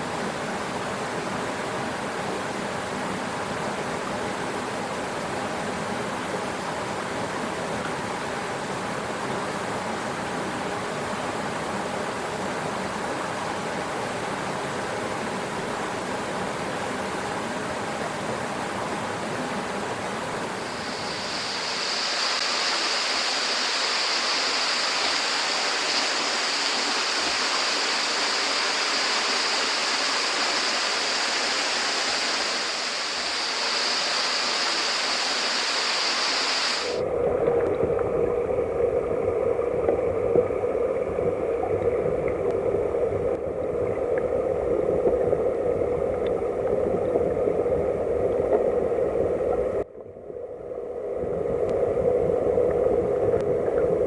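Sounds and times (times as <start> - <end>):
muffled underwater rush: 19.6 - 54.0
stream rushing over rocks: 20.4 - 38.2.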